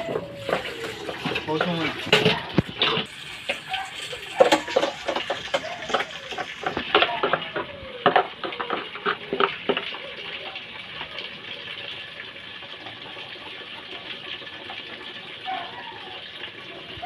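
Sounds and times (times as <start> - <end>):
running water hissing: 0.0 - 17.0
clinks and knocks: 0.3 - 9.8.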